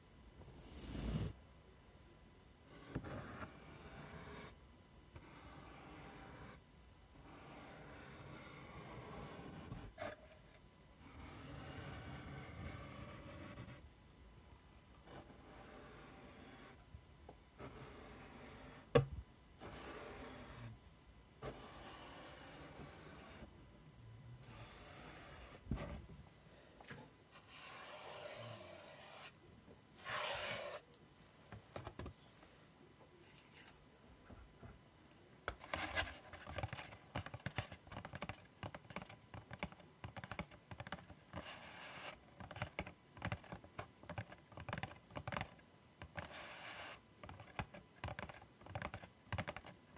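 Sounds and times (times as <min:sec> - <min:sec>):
scratching strokes on surface: 0:27.4 - 0:29.4.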